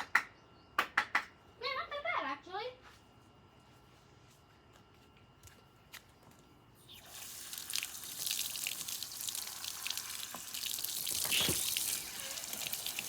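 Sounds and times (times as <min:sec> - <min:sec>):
tap water running into sink: 0:07.0 - 0:13.0.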